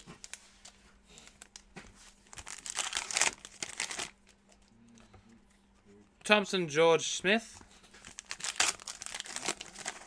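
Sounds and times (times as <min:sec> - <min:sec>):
plastic wrapper crinkling and tearing: 0:00.0 - 0:04.5, 0:08.0 - 0:10.0.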